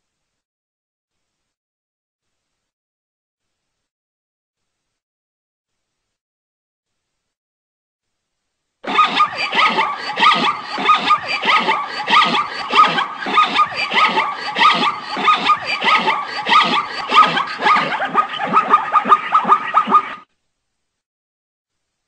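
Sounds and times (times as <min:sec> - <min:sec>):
zebra barking yelps: 0:08.8 - 0:20.3.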